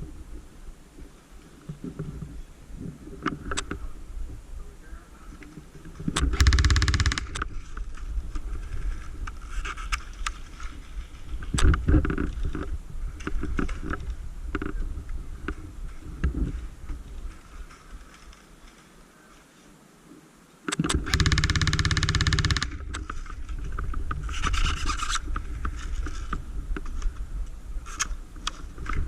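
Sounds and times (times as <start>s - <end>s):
airsoft gun full-auto burst: 6.4s - 7.4s, 21.0s - 22.8s.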